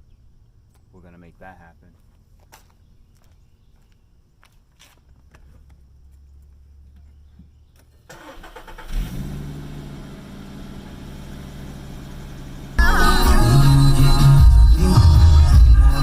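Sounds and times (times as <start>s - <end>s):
car engine starting and idling: 8.0s - 14.3s.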